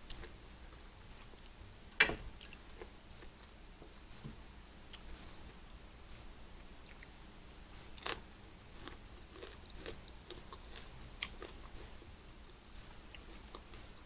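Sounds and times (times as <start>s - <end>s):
person chewing and biting: 7.9s - 13.9s.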